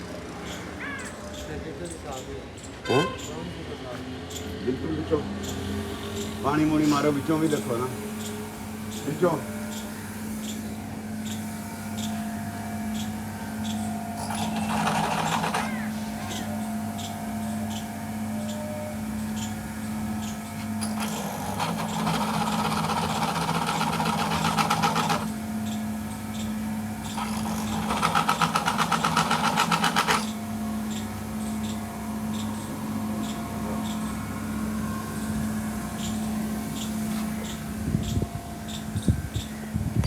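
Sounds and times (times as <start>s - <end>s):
small motor humming: 5.4s - 40.0s
fast mechanical rattling: 13.7s - 17.1s, 19.4s - 31.5s.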